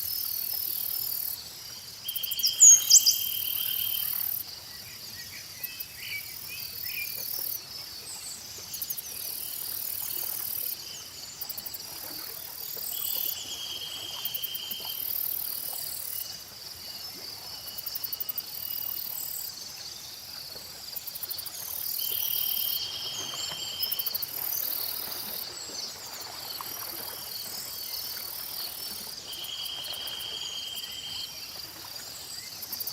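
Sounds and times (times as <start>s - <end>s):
insects and crickets chirping: 0.0s - 32.9s
bird chirps: 2.3s - 4.2s.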